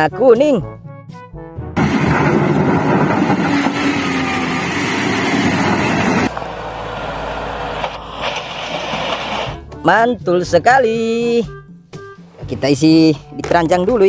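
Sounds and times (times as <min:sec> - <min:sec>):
steady rushing noise: 0:01.8 - 0:09.6
bulldozer engine running rough: 0:01.8 - 0:09.7.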